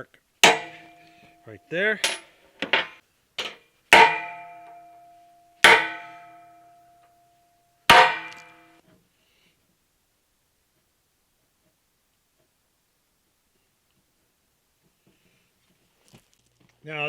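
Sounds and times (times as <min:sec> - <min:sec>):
hammer striking steel punch: 0:00.4 - 0:02.3, 0:03.4 - 0:07.2, 0:07.9 - 0:08.8
steel ringing: 0:00.4 - 0:02.3, 0:03.4 - 0:08.8.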